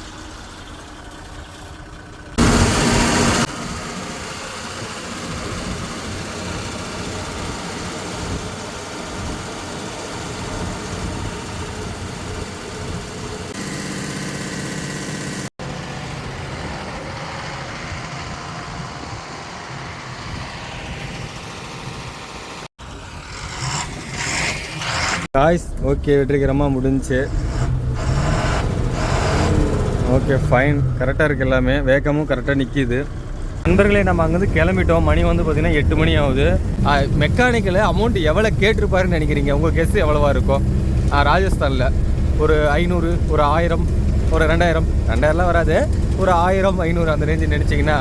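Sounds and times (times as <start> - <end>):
diesel engine idling: 0.0 - 22.6, 25.4 - 48.0
loud burst: 2.4 - 6.6.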